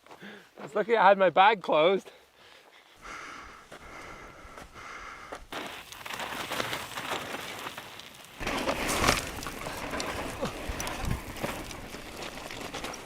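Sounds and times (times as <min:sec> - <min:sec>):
bike tyres crunching over gravel: 0:05.3 - 0:13.0.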